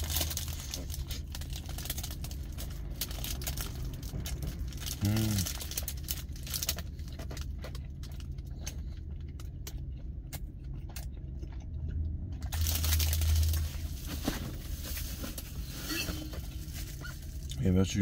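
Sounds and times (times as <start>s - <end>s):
close chewing with crunches: 0.0s - 14.0s
low hum in a truck cab: 0.0s - 18.0s.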